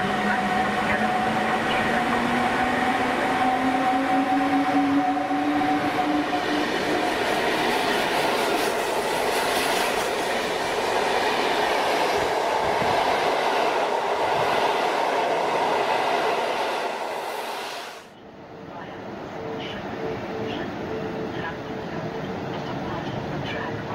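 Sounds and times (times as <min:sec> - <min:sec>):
train wheels rumbling on track: 0:00.0 - 0:18.1.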